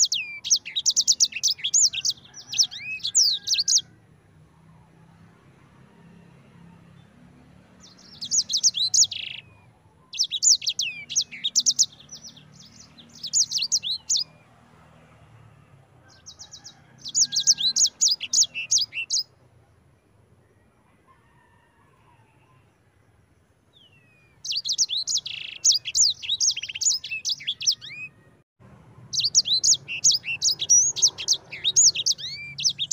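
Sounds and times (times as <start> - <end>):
finch chirping trills: 0.0 - 3.9, 7.8 - 14.4, 16.2 - 19.3, 23.8 - 28.2, 29.0 - 32.9.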